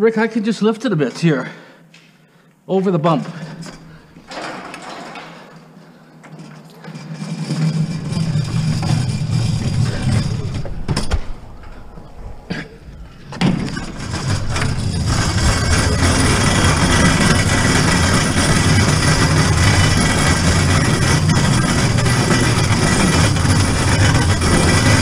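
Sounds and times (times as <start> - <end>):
dolly wheels rumbling: 3.3 - 25.0.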